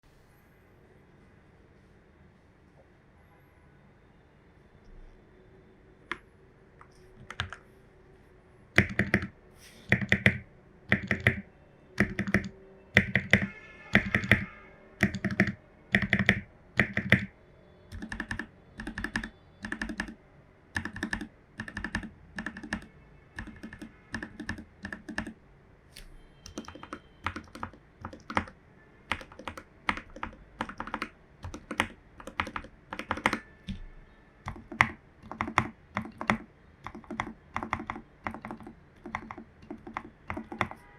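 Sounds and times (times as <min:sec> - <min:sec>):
typing on mechanical keyboard: 0:06.8 - 0:07.6, 0:08.8 - 0:09.3, 0:09.9 - 0:11.4, 0:12.0 - 0:17.3, 0:17.9 - 0:20.2, 0:20.8 - 0:25.4, 0:26.4 - 0:40.8.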